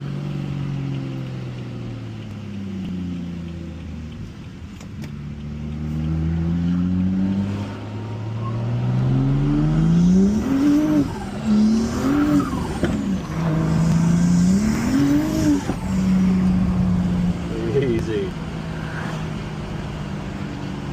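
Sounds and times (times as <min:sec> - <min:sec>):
turbocharged car engine revving: 0:05.2 - 0:20.9.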